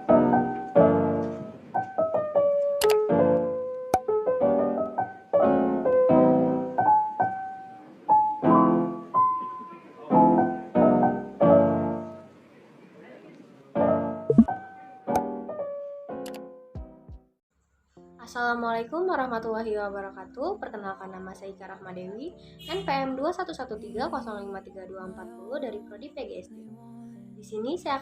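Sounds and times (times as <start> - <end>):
piano music: 0.0 - 12.3, 13.9 - 16.6.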